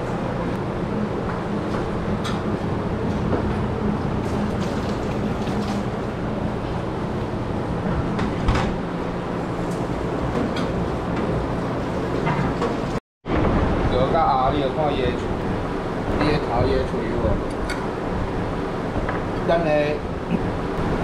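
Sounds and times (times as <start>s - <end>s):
low machine hum: 0.0s - 21.0s
noisy room background: 0.0s - 21.0s.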